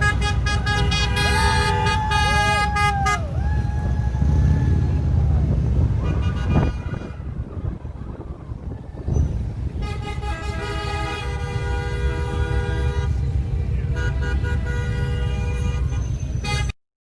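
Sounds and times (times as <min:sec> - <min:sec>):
vehicle horns honking: 0:00.0 - 0:03.4, 0:05.9 - 0:07.6, 0:09.6 - 0:16.8
low rumble of traffic: 0:00.0 - 0:16.8.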